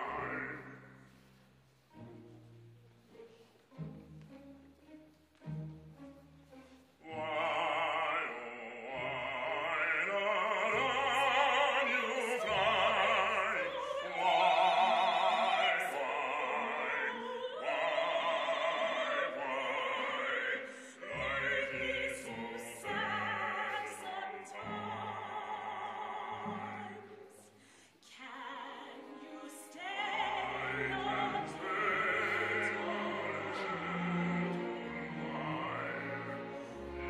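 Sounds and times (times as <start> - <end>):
operatic singing: 0.0 - 37.0
low instrumental accompaniment: 1.1 - 7.1.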